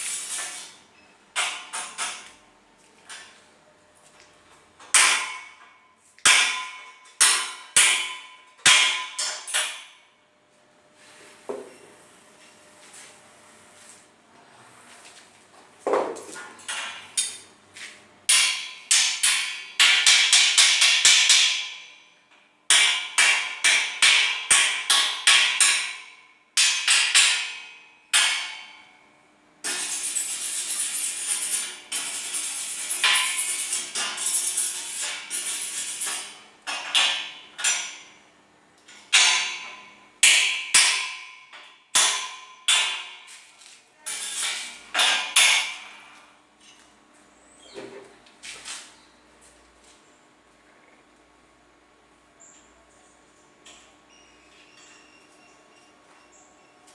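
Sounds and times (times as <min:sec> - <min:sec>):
hammer striking steel bars: 0:04.9 - 0:05.6, 0:06.2 - 0:10.0, 0:18.3 - 0:22.0, 0:22.7 - 0:28.8, 0:39.1 - 0:43.3, 0:44.1 - 0:46.1.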